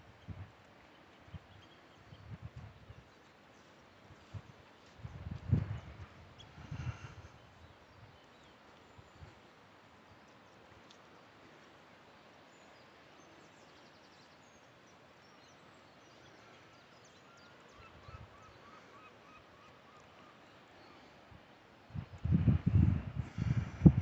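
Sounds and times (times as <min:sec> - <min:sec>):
faint steady hiss: 0:00.0 - 0:24.0
distant bird calls: 0:06.3 - 0:21.6.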